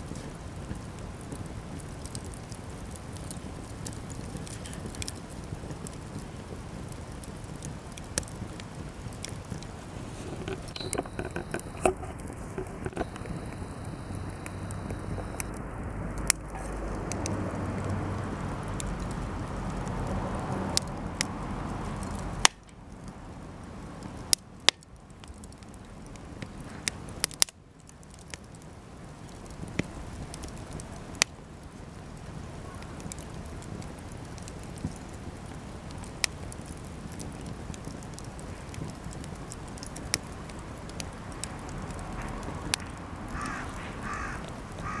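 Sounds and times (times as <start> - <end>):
campfire crackling and popping: 0.0 - 45.0
steady rushing noise: 8.4 - 22.6.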